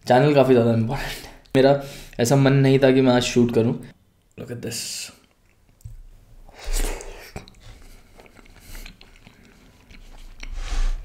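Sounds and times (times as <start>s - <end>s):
man biting and chewing: 6.6s - 11.0s.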